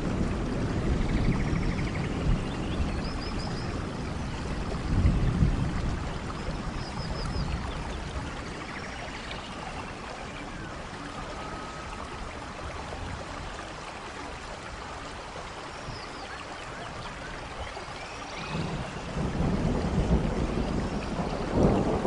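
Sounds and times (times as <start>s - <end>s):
thunder rumble: 0.0s - 9.1s, 18.4s - 22.0s
steady rainfall: 0.0s - 22.0s.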